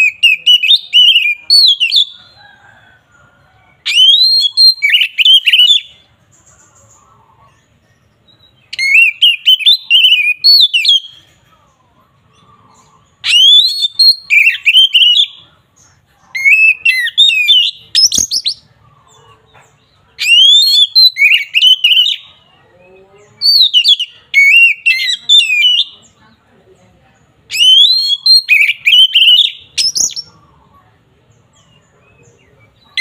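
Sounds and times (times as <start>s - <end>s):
bird singing whistled phrases: 0.0s - 2.2s, 3.8s - 5.9s, 8.3s - 11.2s, 13.2s - 15.4s, 16.4s - 18.7s, 20.2s - 22.3s, 23.4s - 26.0s, 27.5s - 30.4s.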